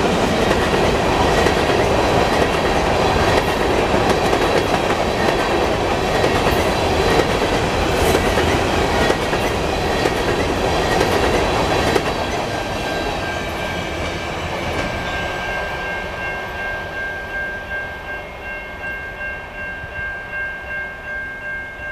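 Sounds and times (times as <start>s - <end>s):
high ringing tones: 12.9s - 21.9s.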